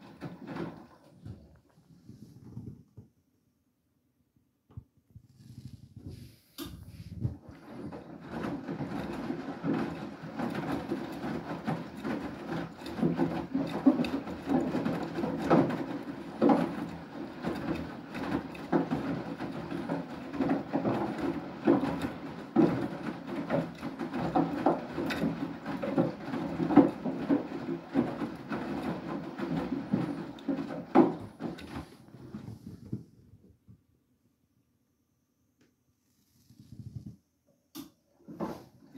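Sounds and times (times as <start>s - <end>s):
washing machine drum turning: 6.6s - 32.0s.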